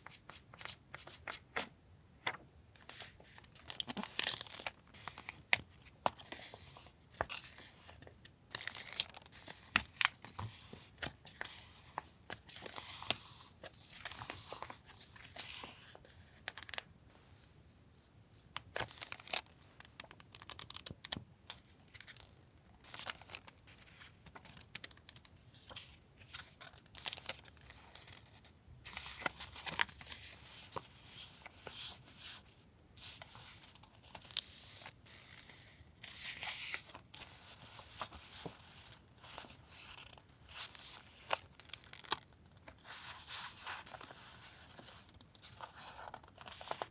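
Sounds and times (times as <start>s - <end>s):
packaging crinkling and tearing: 40.0s - 42.3s.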